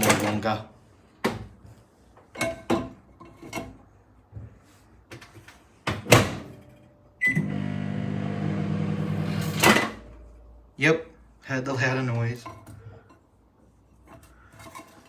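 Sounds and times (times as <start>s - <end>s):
microwave beep: 7.2s - 9.4s
microwave running hum: 7.2s - 10.2s.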